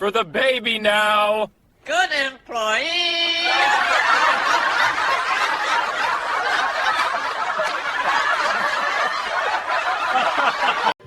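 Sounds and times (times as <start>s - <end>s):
crowd laughing: 3.4s - 11.0s.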